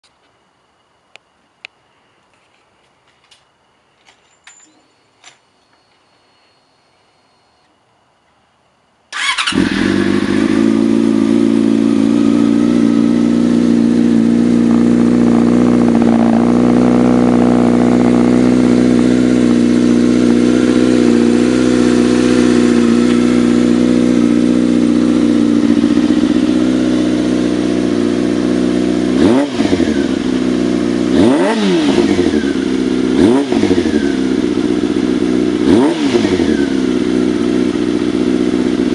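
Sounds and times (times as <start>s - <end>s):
motorcycle engine idling: 9.2s - 31.3s, 31.9s - 38.9s
engine revving: 9.2s - 38.9s.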